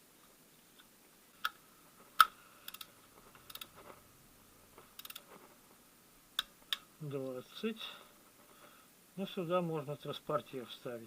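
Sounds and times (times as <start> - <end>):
metallic clicks: 2.2 - 3.7, 4.9 - 5.3.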